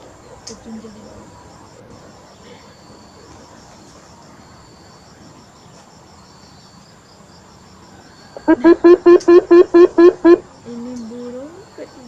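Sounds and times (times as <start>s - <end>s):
insects chirping: 0.0s - 12.0s
bird deep hooting call: 8.3s - 10.4s.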